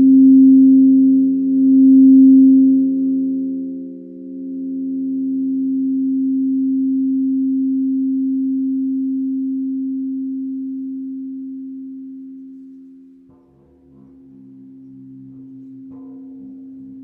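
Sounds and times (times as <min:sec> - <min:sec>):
crystal singing bowls ringing: 0:00.0 - 0:07.3, 0:12.3 - 0:17.0.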